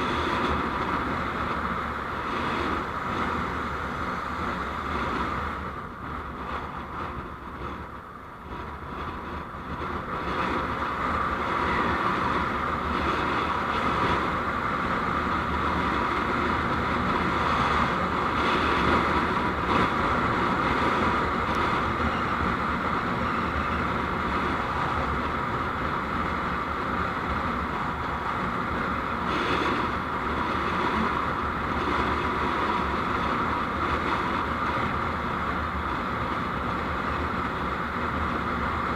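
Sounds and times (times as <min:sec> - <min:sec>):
vehicle road and engine noise: 0:00.0 - 0:38.9.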